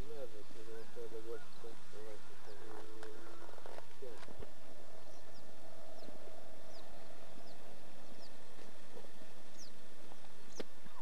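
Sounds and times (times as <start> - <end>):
birds chirping: 0.0 - 11.0
vehicle driving on road: 2.2 - 11.0.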